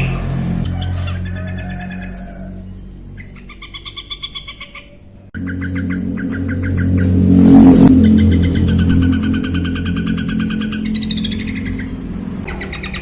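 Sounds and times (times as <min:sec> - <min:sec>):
bird singing rapid chirps: 0:00.0 - 0:13.0
steady low hum: 0:00.0 - 0:13.0
rushing noise: 0:05.3 - 0:13.0.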